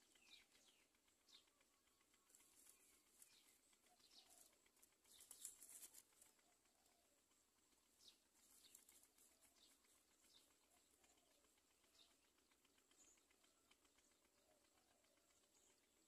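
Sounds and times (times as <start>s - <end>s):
faint bird chirps: 0.0s - 7.2s.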